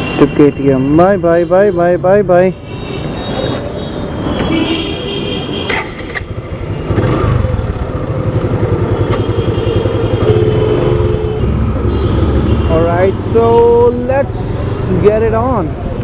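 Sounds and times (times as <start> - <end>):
street noise: 0.0 - 16.0
sharp clicks: 5.6 - 6.4
motorcycle engine starting and idling: 5.7 - 12.6.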